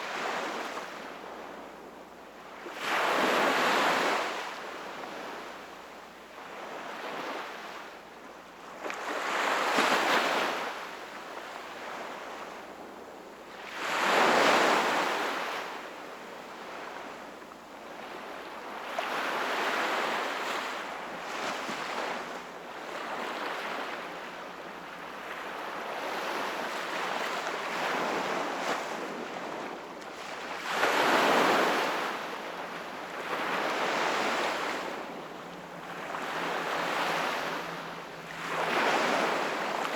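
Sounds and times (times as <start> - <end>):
sea waves breaking on shore: 2.6 - 5.7, 13.5 - 39.9.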